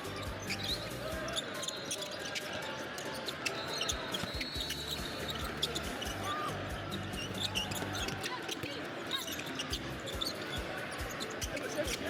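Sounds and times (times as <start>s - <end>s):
basketballs bouncing on court: 3.0s - 12.0s.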